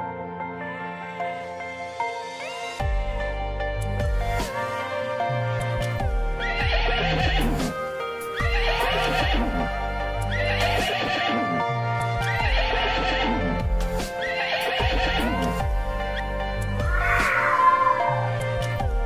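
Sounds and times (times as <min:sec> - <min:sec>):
gentle background music: 0:00.0 - 0:19.0
horse whinnying: 0:06.4 - 0:07.6, 0:08.4 - 0:09.6, 0:10.3 - 0:11.6, 0:12.4 - 0:13.6, 0:14.2 - 0:15.4, 0:16.8 - 0:18.6.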